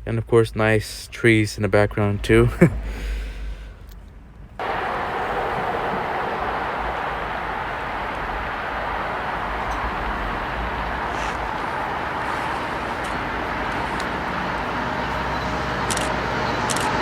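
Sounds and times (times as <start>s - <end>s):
diesel train rumble and hiss: 0.0s - 17.0s
sharp clicks: 9.6s - 17.0s.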